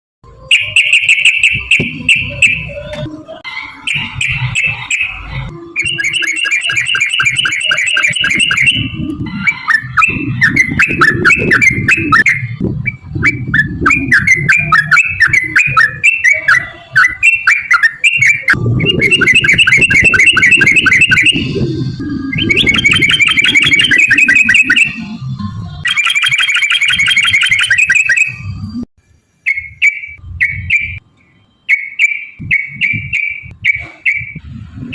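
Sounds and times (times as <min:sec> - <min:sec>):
bird rapid rolling trill: 0:03.8 - 0:25.0, 0:25.8 - 0:28.4
low rumbling noise: 0:08.5 - 0:17.3, 0:18.4 - 0:25.9, 0:32.4 - 0:34.9.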